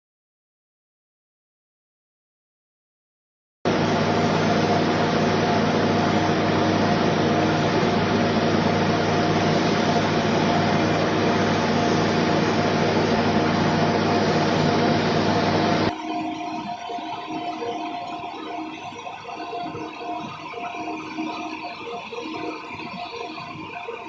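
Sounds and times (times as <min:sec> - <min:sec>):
electric wood lathe running: 0:03.7 - 0:17.5.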